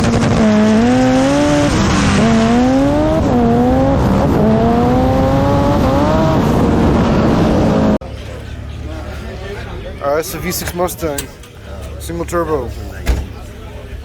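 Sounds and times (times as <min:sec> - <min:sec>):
car engine revving through gears: 0:00.0 - 0:08.0.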